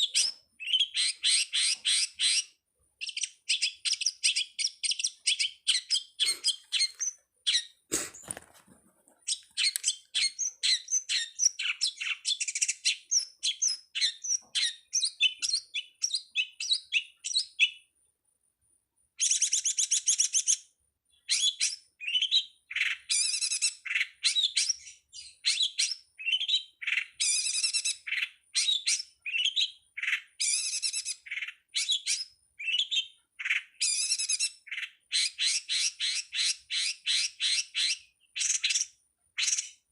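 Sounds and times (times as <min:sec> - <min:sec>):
bird singing high chirps: 0:00.0 - 0:08.3, 0:09.3 - 0:17.9, 0:19.2 - 0:39.9.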